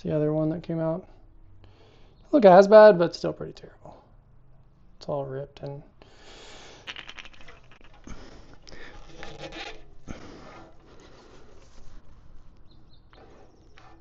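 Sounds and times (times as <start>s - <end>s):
hands rustling and scraping parts: 6.8s - 14.0s.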